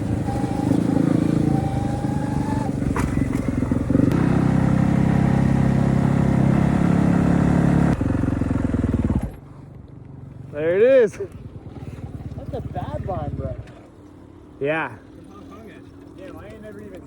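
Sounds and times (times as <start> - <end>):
dirt bike engine running: 0.0 - 9.4.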